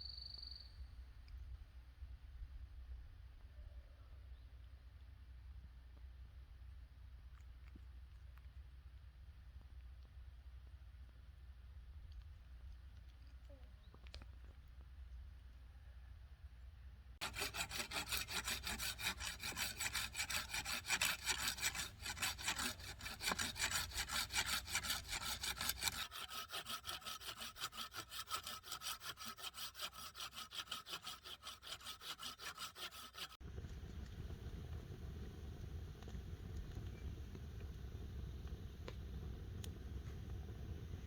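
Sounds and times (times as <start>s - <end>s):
hand saw cutting wood: 17.2s - 33.4s.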